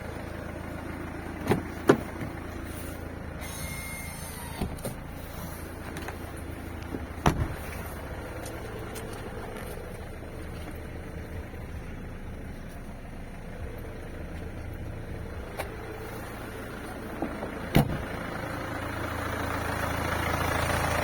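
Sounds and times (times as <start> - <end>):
car engine idling with knock: 0.0 - 21.0
sharp thump: 7.2 - 7.6.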